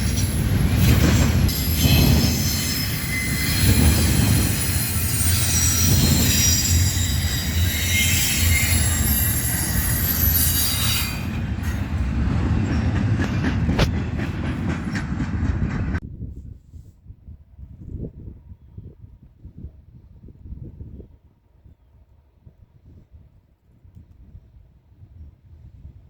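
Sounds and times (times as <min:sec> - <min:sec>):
train rumble: 0:00.0 - 0:16.0
train wheels squealing: 0:00.0 - 0:16.0.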